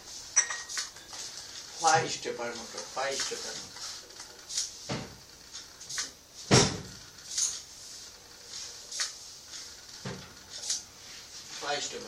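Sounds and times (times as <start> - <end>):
soft hissing noises: 0.0 - 12.0
sharp thump: 6.5 - 6.9.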